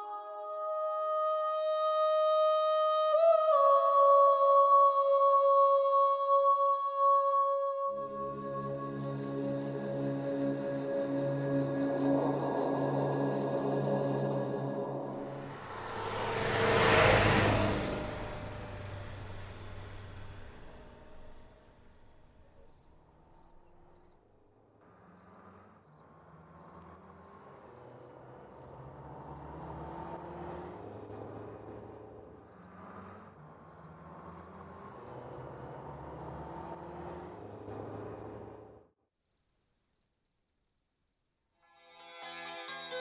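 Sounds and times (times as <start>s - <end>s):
crickets chirping: 15.3s - 36.5s, 39.0s - 42.0s.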